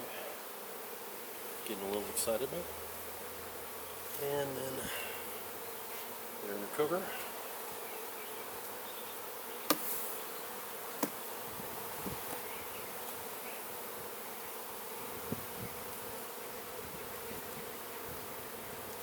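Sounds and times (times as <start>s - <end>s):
honeybees buzzing: 0.0s - 19.0s
knocks of hive parts handled: 9.6s - 10.0s, 11.0s - 11.2s.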